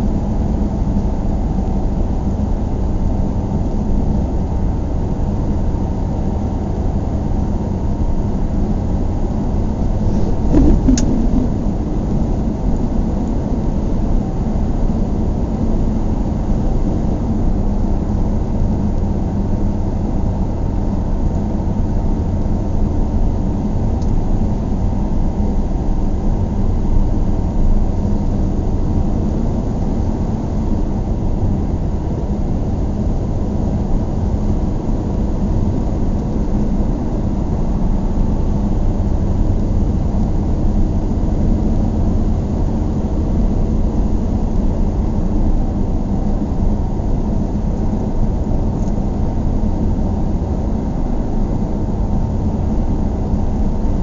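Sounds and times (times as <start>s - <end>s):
moving vehicle rumble: 9.7s - 13.6s
short click: 10.2s - 11.5s.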